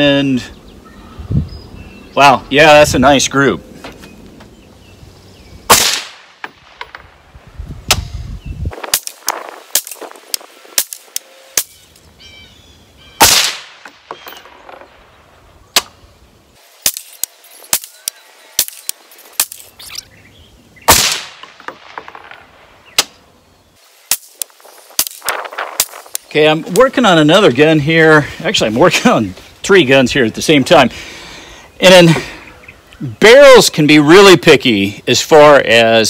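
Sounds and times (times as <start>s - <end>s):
sharp gunshot cracks: 5.7s - 7.0s, 13.2s - 14.0s, 20.9s - 22.0s.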